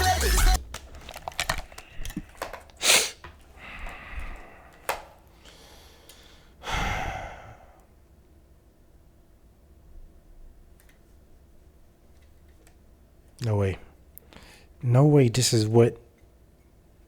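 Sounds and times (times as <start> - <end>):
person sighing heavily: 2.8 - 7.9
small clicks: 10.8 - 11.1.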